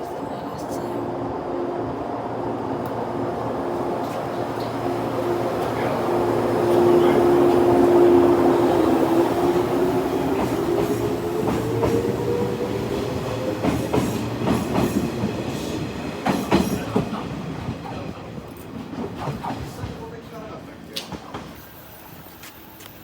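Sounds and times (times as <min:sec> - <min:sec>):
train whine: 0:00.0 - 0:20.6
train wheels clacking over rail joints: 0:13.6 - 0:17.2.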